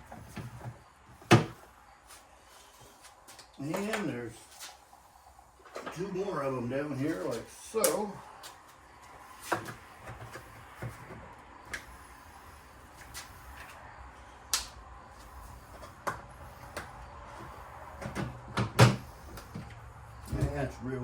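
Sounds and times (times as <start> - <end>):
clicks and knocks of shelving parts: 0.0 - 1.7, 15.8 - 20.8.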